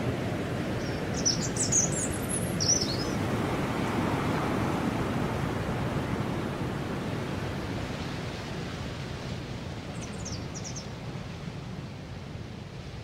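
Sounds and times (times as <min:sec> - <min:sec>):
high bird chirps: 0:00.8 - 0:03.1.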